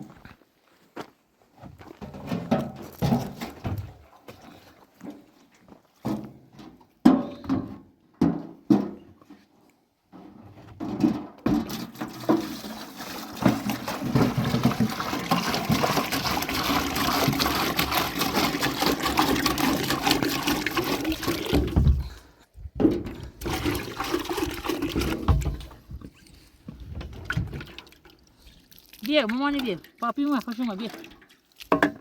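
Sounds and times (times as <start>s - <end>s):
water gushing and splashing: 11.5s - 22.3s, 23.0s - 26.0s, 26.8s - 32.0s.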